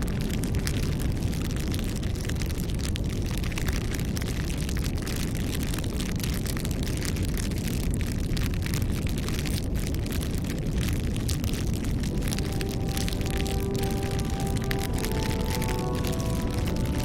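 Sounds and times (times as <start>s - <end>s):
low rumble of burning: 0.0s - 17.0s
wood fire crackling and popping: 0.0s - 17.0s
faint music: 11.8s - 17.0s.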